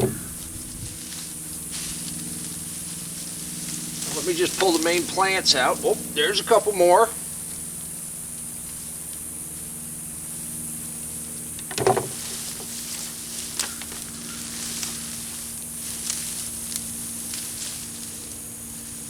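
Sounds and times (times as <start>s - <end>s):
dry mulch crackling: 0.0s - 19.0s
plants snapping: 11.7s - 18.4s.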